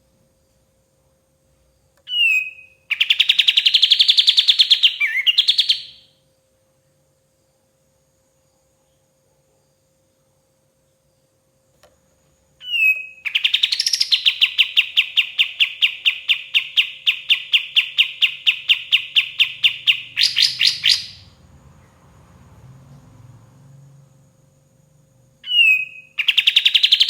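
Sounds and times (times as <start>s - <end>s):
bird singing repeated notes: 2.1s - 6.0s, 12.6s - 21.3s, 25.4s - 27.0s.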